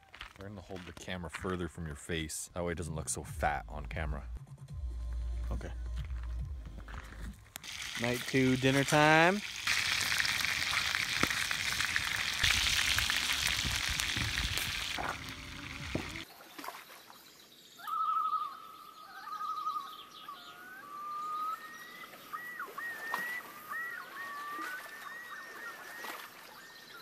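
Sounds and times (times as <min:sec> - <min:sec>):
chicken sizzling in skillets: 0:07.6 - 0:16.3
bird trilling and gliding calls: 0:17.7 - 0:27.0.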